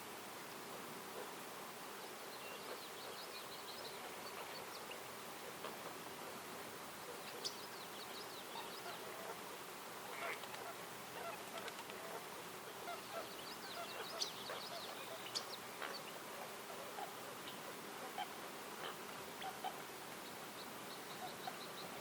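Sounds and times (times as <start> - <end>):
faint outdoor hiss: 0.0 - 22.0
birds calling and chirping: 12.8 - 22.0.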